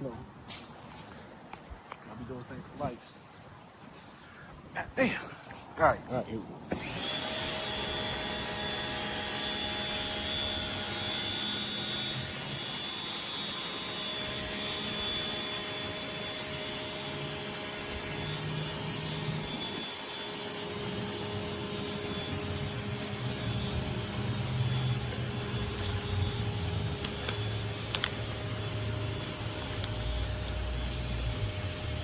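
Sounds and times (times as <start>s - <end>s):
pressure washer motor whine: 6.6s - 32.0s.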